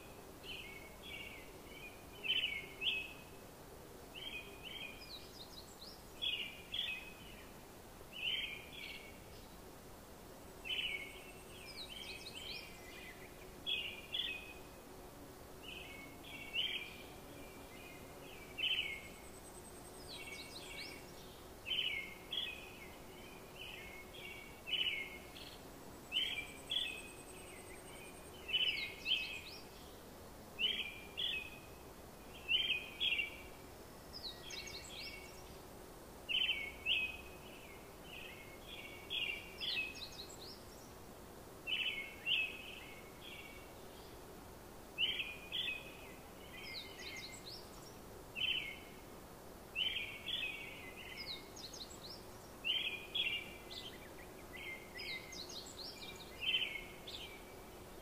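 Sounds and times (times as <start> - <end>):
bird chirping: 0.4 - 3.3, 15.6 - 30.0, 30.6 - 35.6, 45.0 - 48.9, 49.8 - 58.0.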